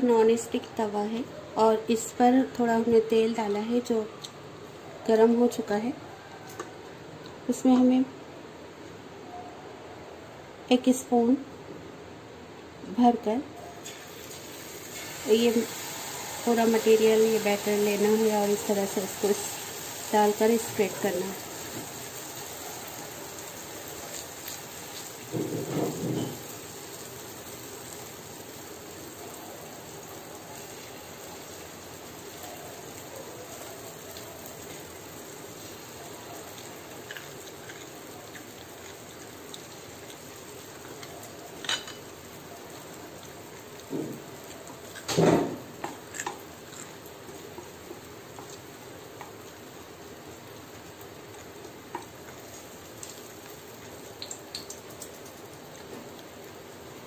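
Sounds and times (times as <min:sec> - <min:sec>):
batter sizzling in hot oil: 0:13.8 - 0:57.0.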